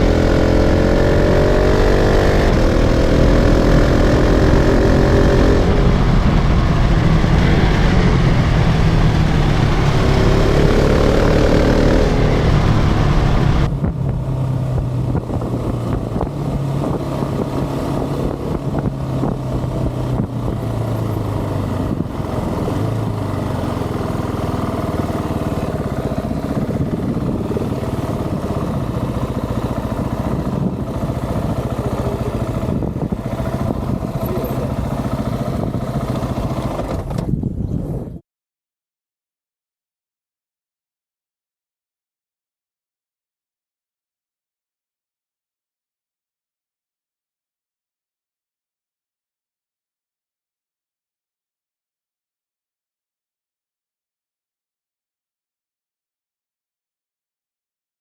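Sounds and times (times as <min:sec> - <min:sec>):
motorcycle engine accelerating: 0:00.0 - 0:38.2.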